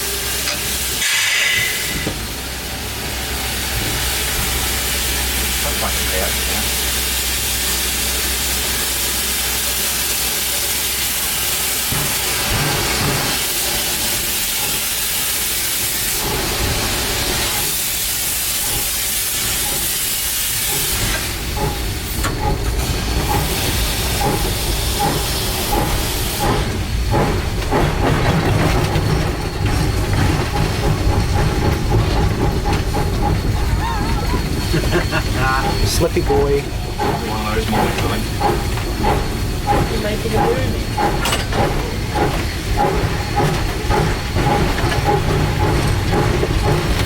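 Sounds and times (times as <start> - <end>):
steam locomotive exhaust beats: 0.0 - 47.0
steam locomotive hissing steam: 0.0 - 47.0.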